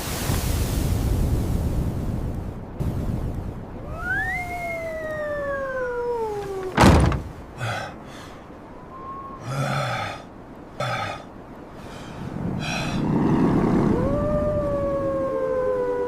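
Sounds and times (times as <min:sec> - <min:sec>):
wolf howling: 0:03.9 - 0:06.8, 0:12.6 - 0:16.0
loud thunk: 0:06.7 - 0:07.4.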